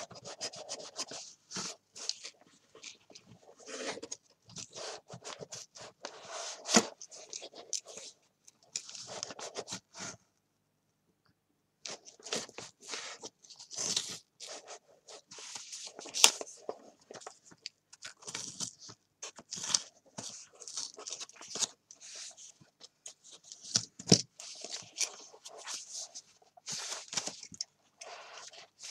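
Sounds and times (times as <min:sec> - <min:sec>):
paper crunching and scraping: 0:00.0 - 0:08.1.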